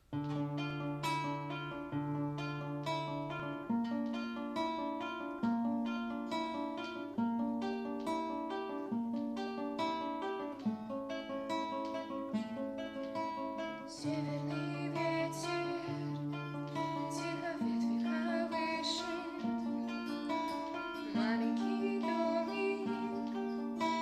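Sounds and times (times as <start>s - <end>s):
acoustic guitar arpeggios: 0.0s - 24.0s.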